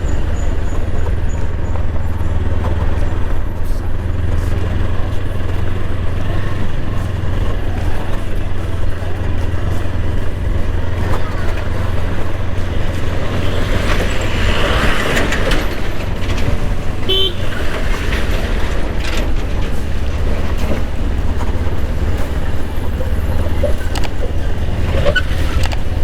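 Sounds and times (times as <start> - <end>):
wind and motorcycle engine rumble: 0.0 - 26.0
horn beep: 8.8 - 26.0.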